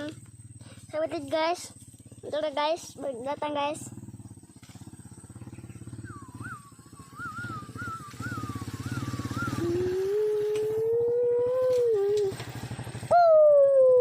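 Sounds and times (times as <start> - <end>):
small motorcycle engine running: 0.0 - 14.0
high wavering whine: 4.0 - 12.4.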